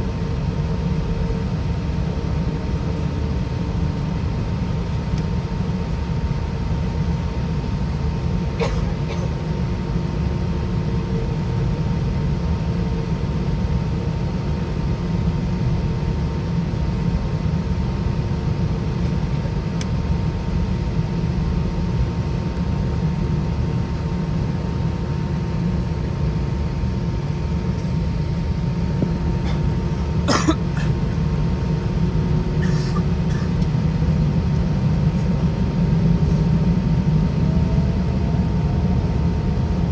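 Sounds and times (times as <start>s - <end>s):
aircraft cabin engine drone: 0.0s - 39.9s
person coughing: 8.6s - 9.4s, 29.4s - 31.1s, 32.6s - 33.6s.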